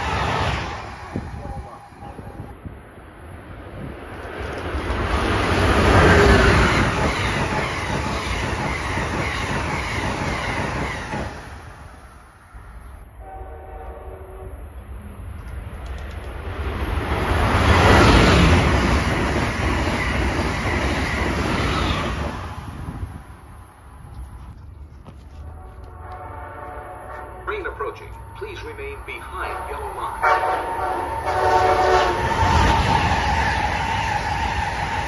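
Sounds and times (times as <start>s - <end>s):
train rushing past: 0.0s - 24.5s, 25.3s - 35.0s
passenger train rushing past: 0.0s - 35.0s
train horn chord: 13.2s - 14.8s, 25.3s - 28.2s, 29.4s - 32.3s.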